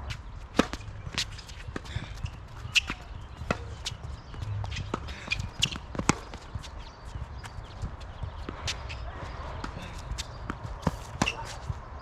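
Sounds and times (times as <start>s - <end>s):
footsteps on hard court: 0.0s - 12.0s
racket hitting tennis ball: 0.5s - 4.0s, 4.6s - 6.7s, 9.6s - 11.7s
ball bouncing: 9.6s - 11.8s.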